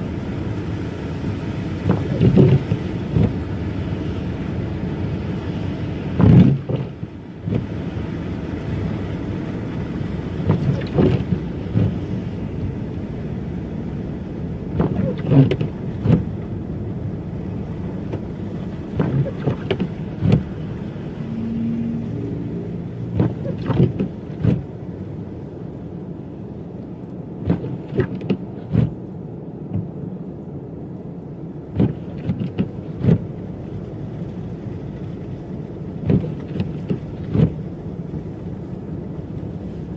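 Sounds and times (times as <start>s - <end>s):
car road rumble on snow: 0.0s - 39.9s
short knocks and thumps: 10.4s - 12.0s, 18.9s - 20.6s, 23.2s - 24.6s, 36.0s - 37.6s.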